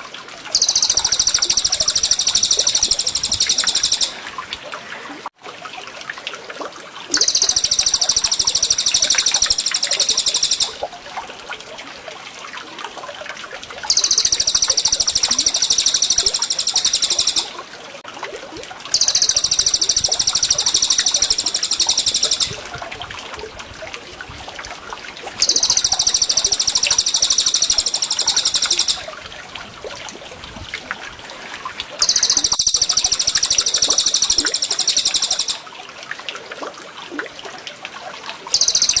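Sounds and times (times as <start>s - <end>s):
water trickling: 0.0s - 39.0s
songbird trilling: 0.6s - 4.2s, 7.2s - 10.8s, 13.9s - 17.6s, 19.0s - 22.6s, 25.4s - 29.1s, 32.0s - 35.6s, 38.5s - 39.0s.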